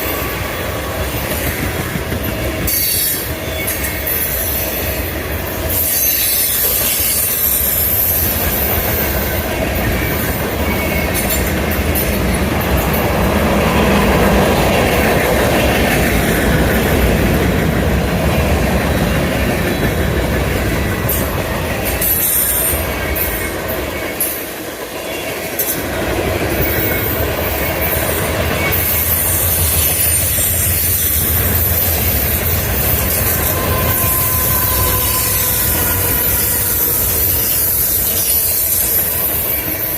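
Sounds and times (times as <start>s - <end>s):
high-pitched wheel squeal: 2.7s - 12.2s, 26.6s - 39.9s.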